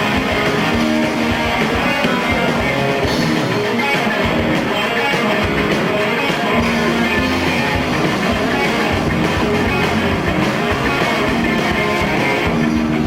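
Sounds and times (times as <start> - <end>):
bass guitar: 0.0 - 13.0
distorted electric guitars: 0.0 - 13.0
drums: 0.0 - 13.0.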